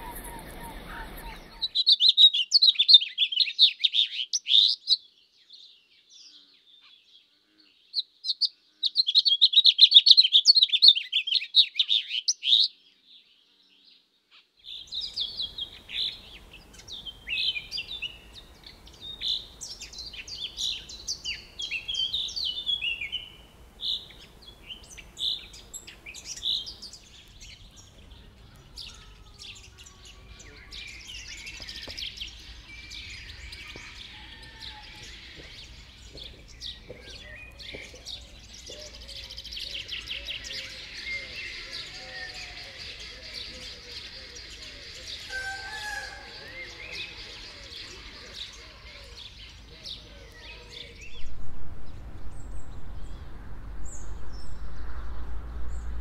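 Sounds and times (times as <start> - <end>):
birds chirping: 0.0 - 5.0, 14.6 - 56.0
faint background hiss: 13.0 - 34.4.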